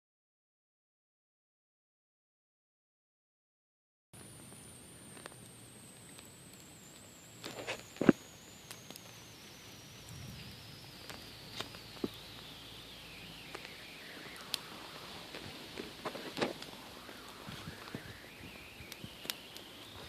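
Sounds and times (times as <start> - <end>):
faint high gliding tone: 6.1 - 20.0
footsteps with sharp cracks: 11.0 - 12.5, 13.4 - 20.0.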